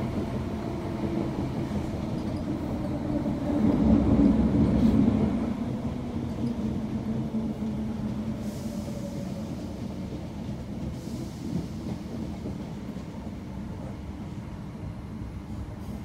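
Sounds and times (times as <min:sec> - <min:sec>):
wheels rumbling on rail: 0:00.0 - 0:16.0.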